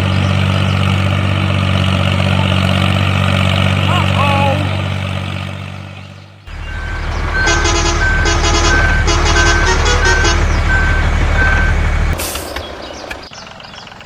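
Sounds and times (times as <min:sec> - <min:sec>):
small truck engine running: 0:00.0 - 0:14.0
reversing beeper beeps: 0:06.5 - 0:12.1.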